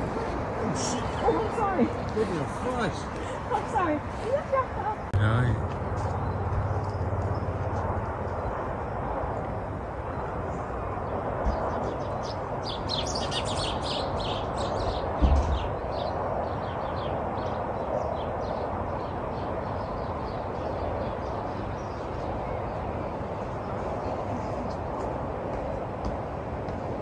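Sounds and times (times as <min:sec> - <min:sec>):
small birds chirping: 0:11.0 - 0:23.0
low thump: 0:15.2 - 0:15.7.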